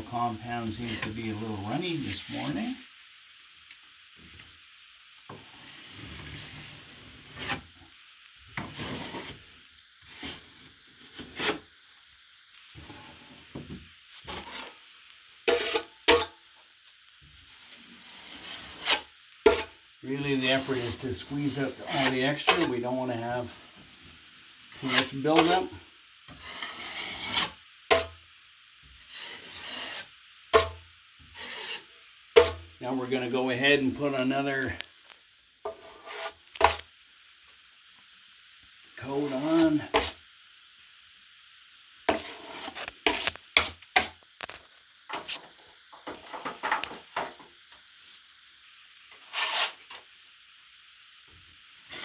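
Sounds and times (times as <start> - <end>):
drywall knife scraping: 10.1 - 11.6, 15.5 - 16.4, 17.7 - 19.8, 20.4 - 22.7, 24.7 - 25.6, 26.3 - 28.2, 29.0 - 30.8, 31.4 - 32.6, 35.7 - 36.8, 39.2 - 40.2, 42.1 - 44.1, 49.2 - 49.8.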